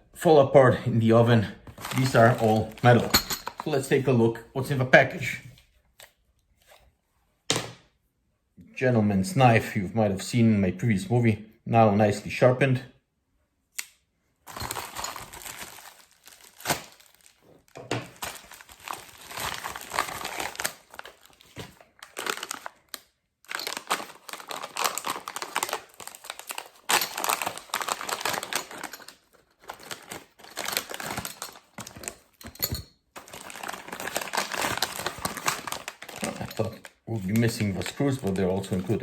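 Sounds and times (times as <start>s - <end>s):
packaging crinkling and tearing: 1.7s - 3.1s, 14.5s - 32.4s, 33.2s - 39.0s.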